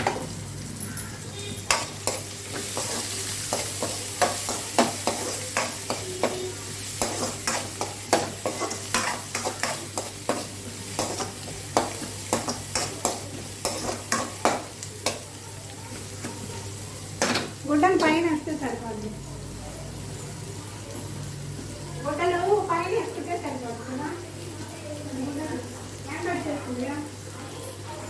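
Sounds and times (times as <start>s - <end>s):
onions sizzling in a pan: 0.0s - 28.0s
spatula scraping a pan: 1.3s - 15.2s.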